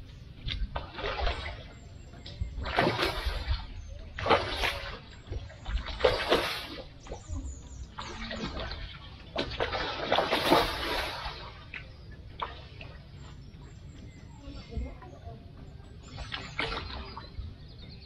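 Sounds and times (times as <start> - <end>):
fish splashing water: 2.6 - 12.8.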